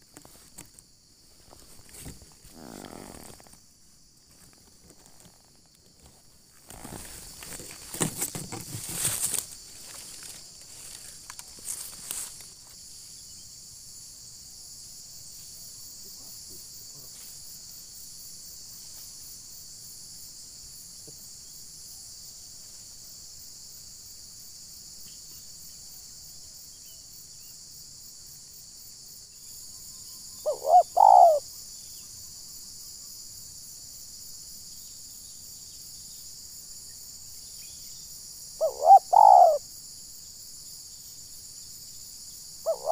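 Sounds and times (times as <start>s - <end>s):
insects droning: 0.0s - 42.9s
rustles and knocks: 1.4s - 3.6s, 4.3s - 12.5s
dove cooing: 2.4s - 3.5s, 30.4s - 31.4s, 38.6s - 39.6s, 42.7s - 42.9s.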